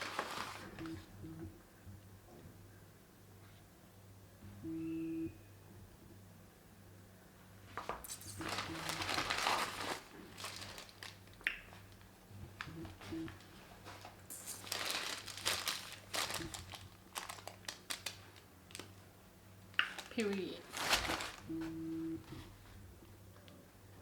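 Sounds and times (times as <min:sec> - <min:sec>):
crinkling and rustling: 0:00.0 - 0:01.1, 0:07.7 - 0:19.1, 0:19.9 - 0:22.7.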